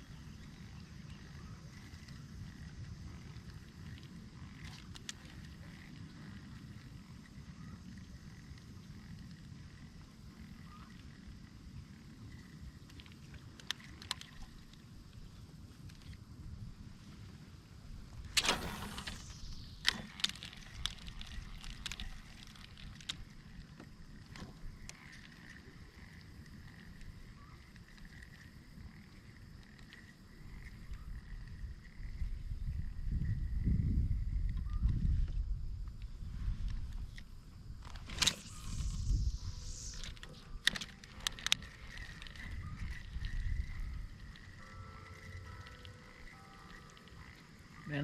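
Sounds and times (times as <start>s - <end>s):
wind and water rumble: 0.0s - 48.0s
sharp swish with falling hiss: 18.3s - 20.5s, 38.1s - 40.3s
sharp clicks: 37.8s - 47.9s.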